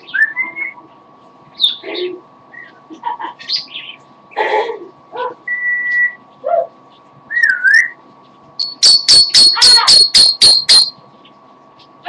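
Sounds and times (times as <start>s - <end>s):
parrot chattering: 8.6s - 10.9s
parrot whistling: 8.6s - 10.9s
parrot high beeping calls: 8.6s - 11.0s.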